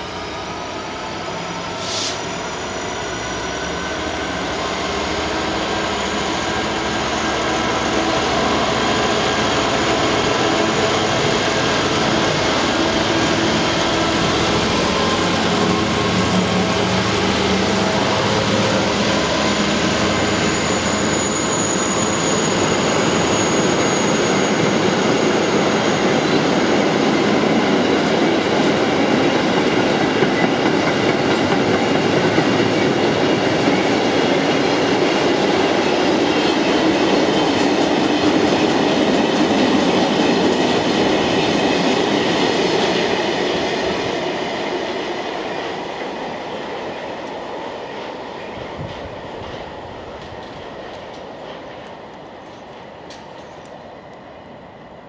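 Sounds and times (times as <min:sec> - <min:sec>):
diesel locomotive engine: 0:00.0 - 0:55.0
high wheel squeal: 0:17.0 - 0:26.7.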